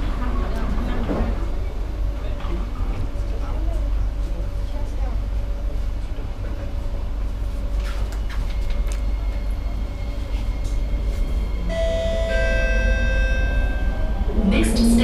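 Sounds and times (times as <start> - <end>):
train rumble inside carriage: 0.0 - 15.0
high tones: 11.7 - 15.0.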